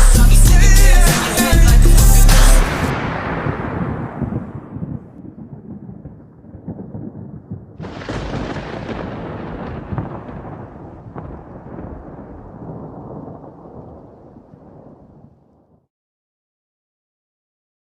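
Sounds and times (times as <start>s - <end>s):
sudden crash: 0.0s - 5.1s
thunder-like rumbling: 2.8s - 15.7s.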